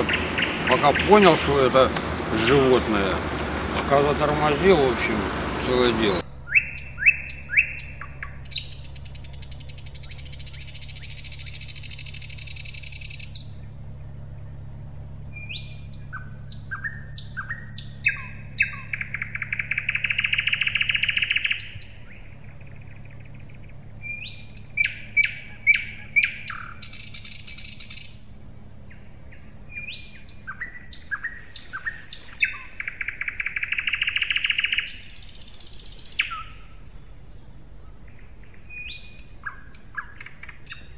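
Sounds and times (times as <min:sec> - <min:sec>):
bird buzzing rattle: 0:00.0 - 0:06.2, 0:08.4 - 0:13.5
songbird chirps and trills: 0:00.0 - 0:40.9.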